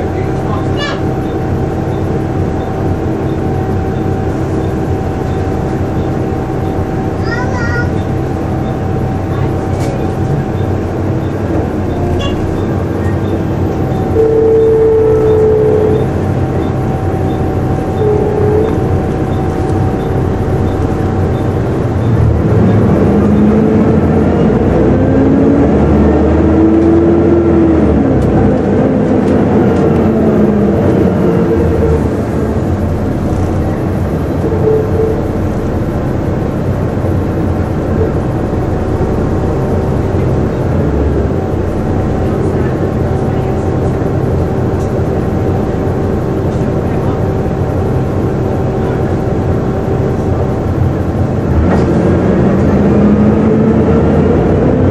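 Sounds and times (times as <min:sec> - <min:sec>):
bus engine rumble and whine: 0:00.0 - 0:54.9
stronger whine tone: 0:08.0 - 0:54.9.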